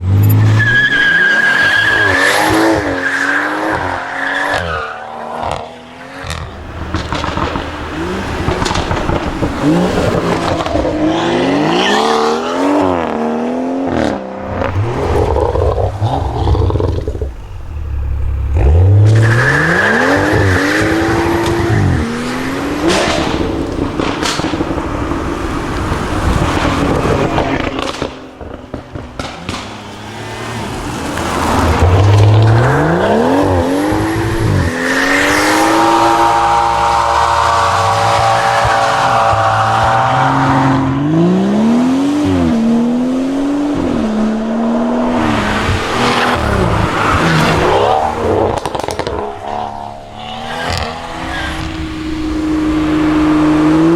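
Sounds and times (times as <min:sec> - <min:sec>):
car engine revving hard: 0:00.3 - 0:53.9
exhaust pops and bangs: 0:06.3 - 0:10.9, 0:20.2 - 0:30.1, 0:45.6 - 0:53.9.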